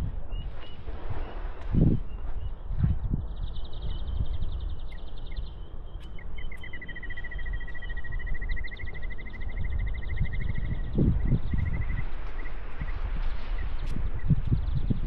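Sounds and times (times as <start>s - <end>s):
footsteps on soft sand: 0.0s - 15.0s
wind on microphone: 0.0s - 15.0s
birds trilling: 3.1s - 14.9s.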